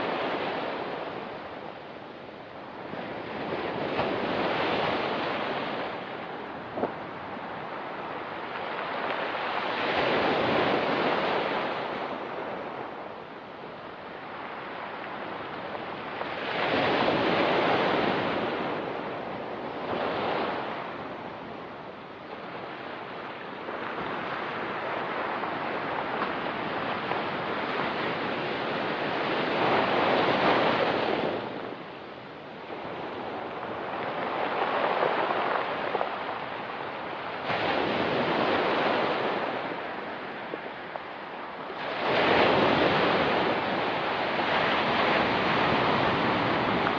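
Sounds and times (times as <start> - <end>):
waves breaking on pebble beach: 32.7 - 46.9.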